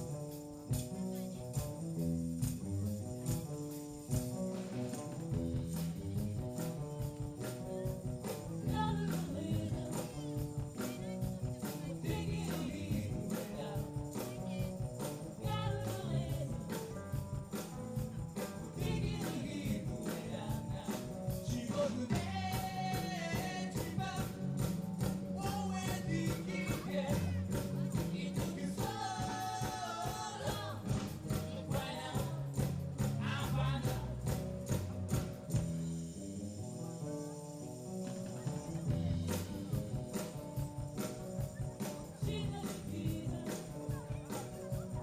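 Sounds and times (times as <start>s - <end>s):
jingling tambourine: 0.0s - 45.0s
live band playing: 0.0s - 45.0s
person singing: 7.6s - 16.9s, 18.4s - 24.6s, 25.4s - 34.4s, 41.7s - 45.0s.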